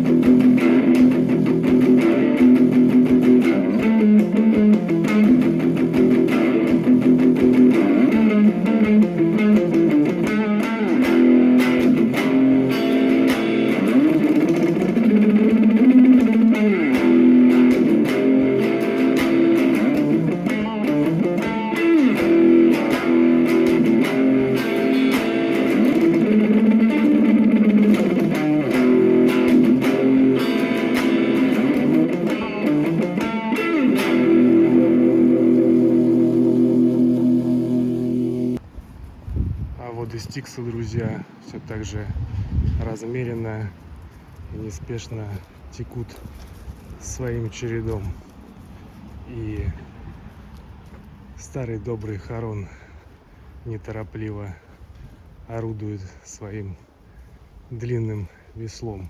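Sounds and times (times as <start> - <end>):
plucked guitar music: 0.0 - 38.6.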